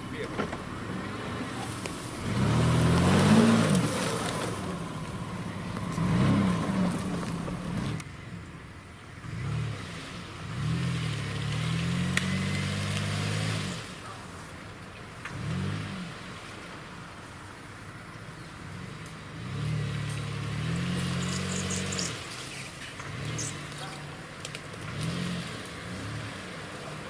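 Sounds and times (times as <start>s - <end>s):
suv engine revving: 0.0s - 27.0s.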